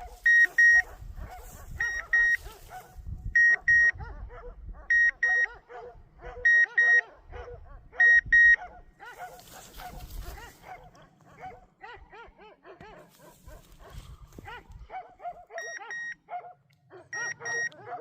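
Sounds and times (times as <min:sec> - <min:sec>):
faint dogs barking: 0:00.0 - 0:18.0
electronic collar double beep: 0:00.3 - 0:00.9, 0:01.8 - 0:02.4, 0:03.4 - 0:04.0, 0:04.9 - 0:05.5, 0:06.5 - 0:07.0, 0:08.0 - 0:08.6, 0:17.2 - 0:17.8.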